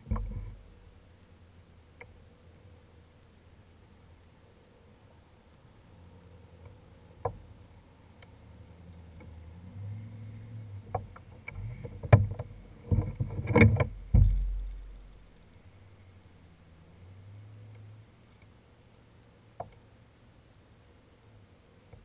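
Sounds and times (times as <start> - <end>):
knocks and clatter on a kayak: 0.0 - 0.9, 6.7 - 7.5, 10.8 - 15.2.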